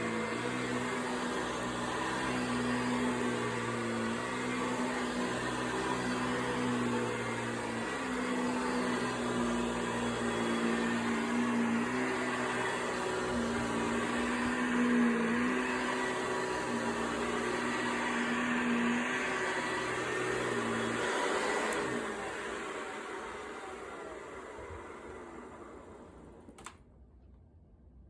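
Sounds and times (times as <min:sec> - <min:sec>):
vacuum cleaner motor humming: 0:00.0 - 0:26.7.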